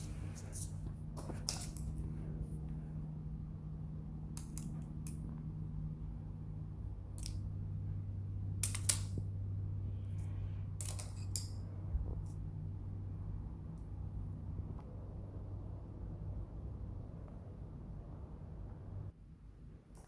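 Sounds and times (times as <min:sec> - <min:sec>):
steady low hum: 0:00.0 - 0:20.0
small clicks and snips: 0:07.2 - 0:07.4.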